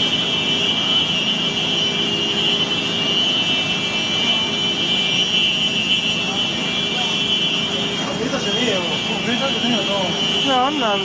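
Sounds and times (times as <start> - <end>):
high-pitched electronic alarms: 0.0 - 11.0.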